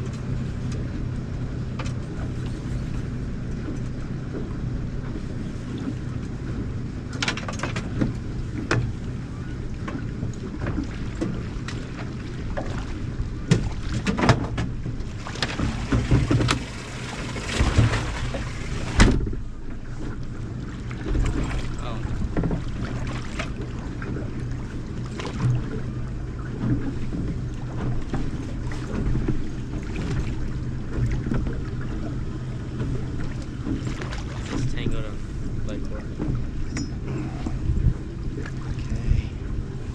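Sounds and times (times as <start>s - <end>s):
boat engine humming: 0.0s - 39.9s
water and wind noise: 0.0s - 39.9s
wind buffeting microphone: 20.4s - 39.9s.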